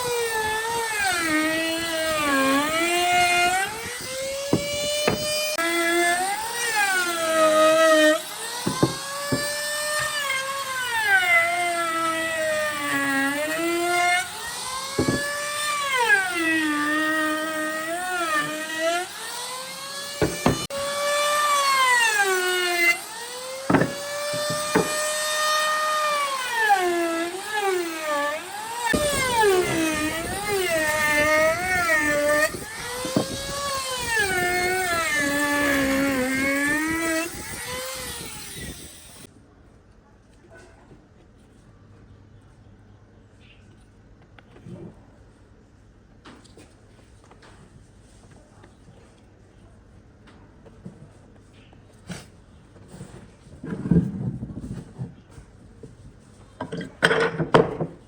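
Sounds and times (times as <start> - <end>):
electric power tool whining: 0.0 - 39.3.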